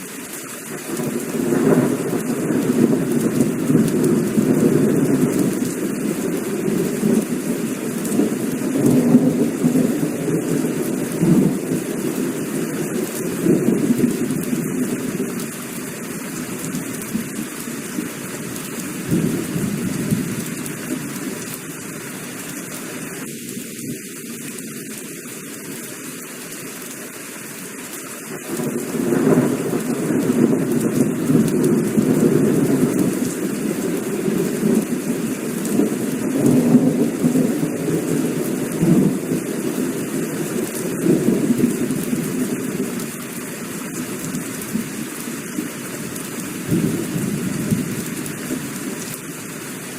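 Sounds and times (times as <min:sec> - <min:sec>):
heavy rain falling: 0:00.0 - 0:49.9
rolling thunder: 0:01.0 - 0:15.3, 0:19.0 - 0:21.0, 0:28.5 - 0:43.1, 0:46.6 - 0:48.6.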